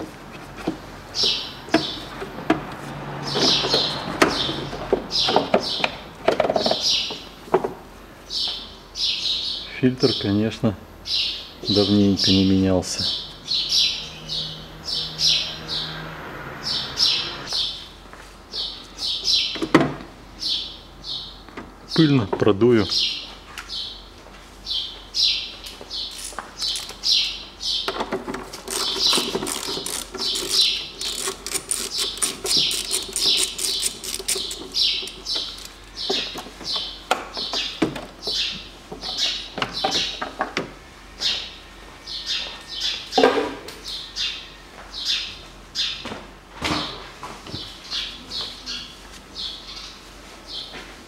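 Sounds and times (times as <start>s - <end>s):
small birds chirping: 1.1s - 2.2s, 3.2s - 6.0s, 6.6s - 7.4s, 8.3s - 16.0s, 18.5s - 19.6s, 20.4s - 28.0s, 28.6s - 40.3s, 46.8s - 50.8s.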